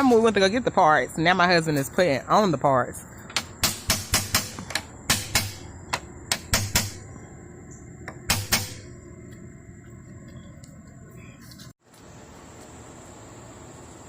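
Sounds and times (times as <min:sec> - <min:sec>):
tools knocking on metal parts: 0:03.3 - 0:07.1.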